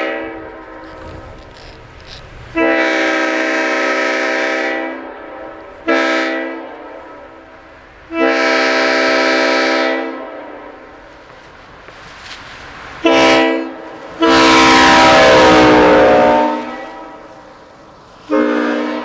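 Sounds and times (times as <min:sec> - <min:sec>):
air horn chord blasts: 0:02.6 - 0:07.4, 0:08.1 - 0:10.8, 0:13.0 - 0:17.4, 0:18.3 - 0:19.0.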